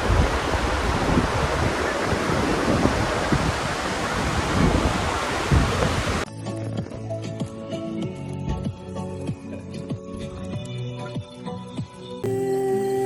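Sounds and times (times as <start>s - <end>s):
rushing floodwater roar: 0.0s - 6.2s
wind buffeting microphone: 0.0s - 6.2s
soft music: 6.2s - 13.0s.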